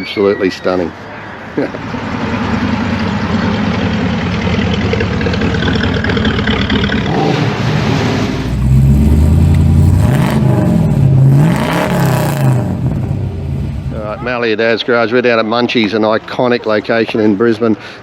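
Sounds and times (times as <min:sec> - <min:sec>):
car engine revving: 0:01.6 - 0:14.3.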